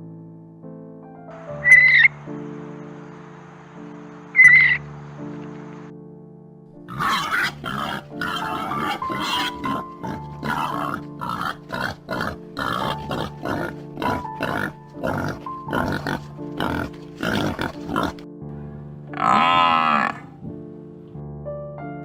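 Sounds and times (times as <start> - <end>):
animal short calls: 6.9 - 14.7.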